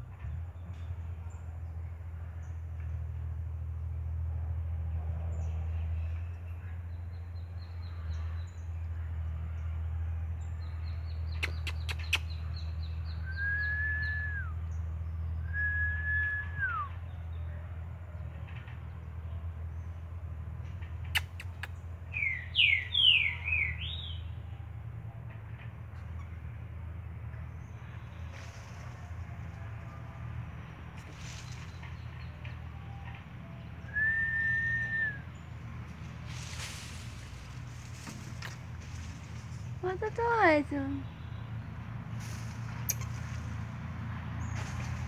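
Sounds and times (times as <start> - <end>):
birds whistling: 11.1 - 17.2, 21.1 - 24.4, 31.2 - 35.5
sharp clicks: 11.3 - 12.4, 21.0 - 21.8.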